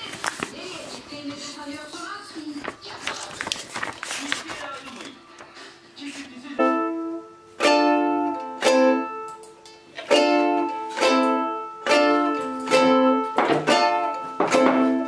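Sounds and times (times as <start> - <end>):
ukulele strummed slowly: 6.6 - 15.0.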